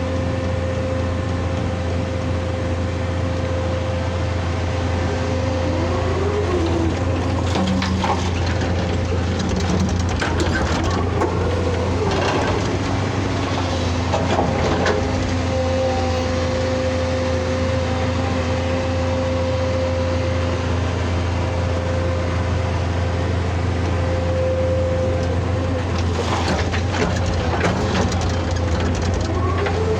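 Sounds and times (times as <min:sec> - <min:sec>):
excavator engine humming: 0:00.0 - 0:29.9
steady whine: 0:01.1 - 0:22.8
knocks and cracking: 0:07.0 - 0:15.7.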